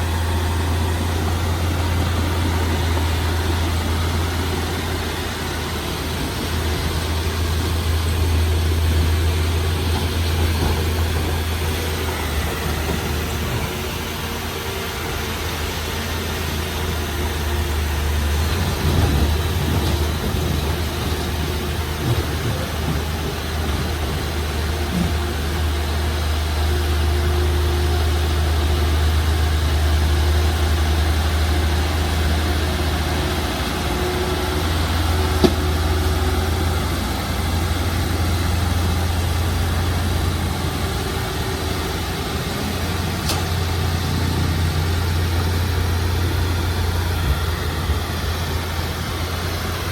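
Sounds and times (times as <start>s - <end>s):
heavy diesel engine running: 0.0s - 49.9s.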